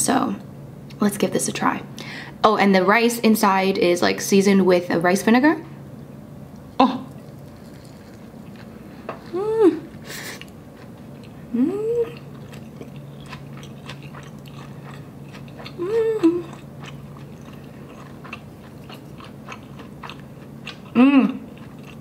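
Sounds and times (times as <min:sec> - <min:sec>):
closed-mouth hums of enjoyment: 0:09.2 - 0:10.4, 0:11.5 - 0:12.3, 0:15.6 - 0:16.6, 0:20.9 - 0:21.5
chewing with mouth smacks: 0:10.2 - 0:22.0.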